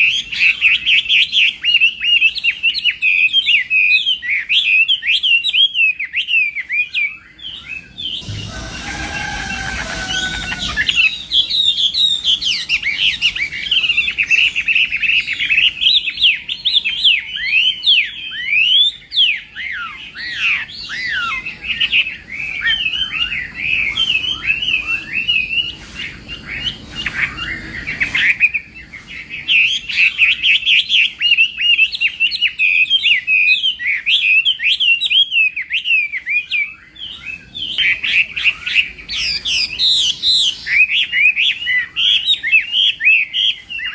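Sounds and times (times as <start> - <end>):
bird singing rapid whistles: 0.0 - 43.9.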